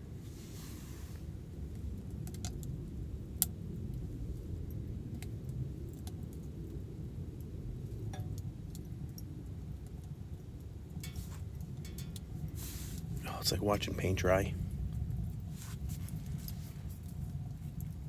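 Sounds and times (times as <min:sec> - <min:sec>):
steady low rumble: 0:00.0 - 0:18.0
light clicks and clinks: 0:11.0 - 0:13.1.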